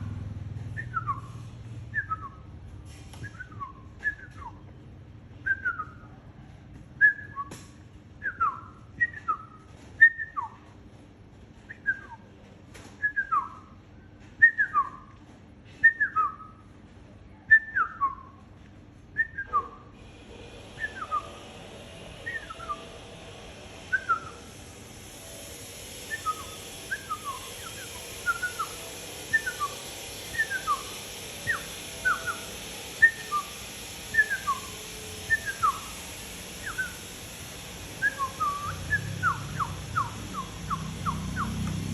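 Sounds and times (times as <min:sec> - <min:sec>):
steady hiss: 0:20.0 - 0:41.9
short whistled notes sliding down: 0:20.8 - 0:21.5, 0:22.2 - 0:22.9, 0:23.9 - 0:24.6, 0:25.2 - 0:37.4, 0:38.0 - 0:41.6.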